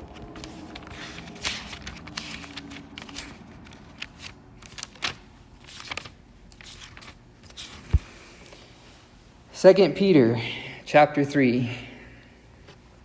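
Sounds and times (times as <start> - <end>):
paper pages rustling: 0.0 - 8.7.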